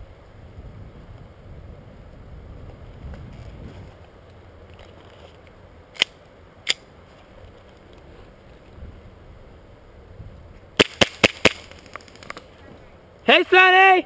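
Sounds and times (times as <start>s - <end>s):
wind on microphone: 0.0s - 4.1s
airsoft gun shots: 10.8s - 11.8s.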